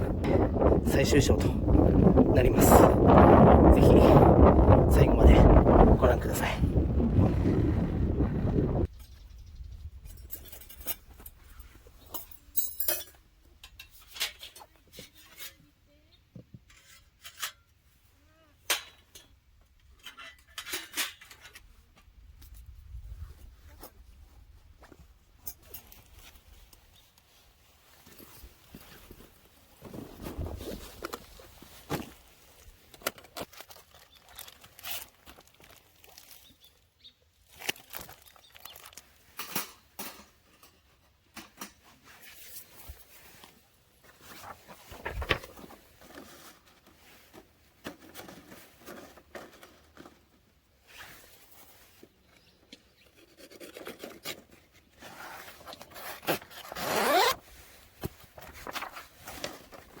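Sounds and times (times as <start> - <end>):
zipper pulled: 55.0 - 57.4.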